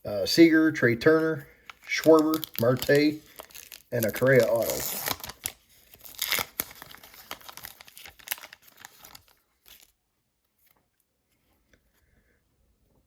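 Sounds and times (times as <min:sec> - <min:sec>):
foil wrapper tearing and crinkling: 0:01.5 - 0:10.0.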